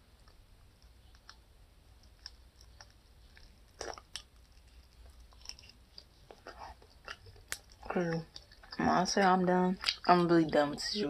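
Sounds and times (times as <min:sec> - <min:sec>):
quiet chewing: 0:00.2 - 0:10.9
small mouth clicks: 0:02.0 - 0:04.6.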